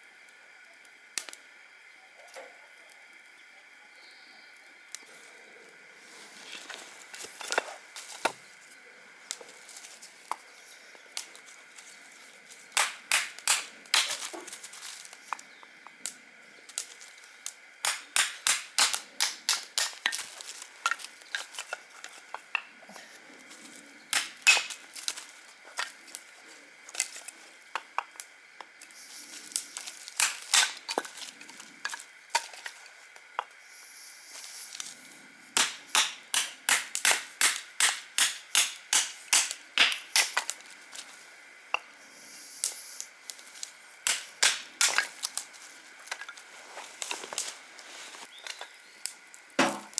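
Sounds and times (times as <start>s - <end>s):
faint high hiss: 0.0s - 49.9s
dry wood snapping and crackling: 6.3s - 33.6s, 35.6s - 41.9s, 42.6s - 49.9s.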